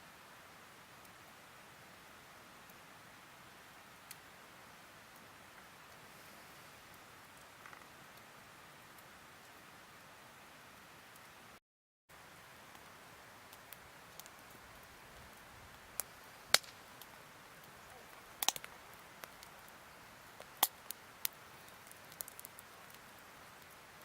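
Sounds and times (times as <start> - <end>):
campfire crackling and popping: 3.6 - 4.4, 5.1 - 9.1, 12.2 - 24.0.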